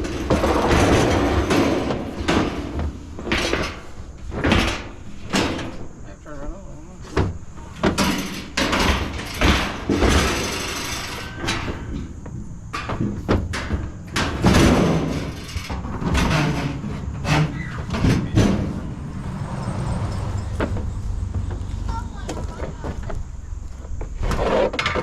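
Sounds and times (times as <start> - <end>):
scrap metal clanging into truck bed: 0.0 - 6.0, 7.2 - 21.0.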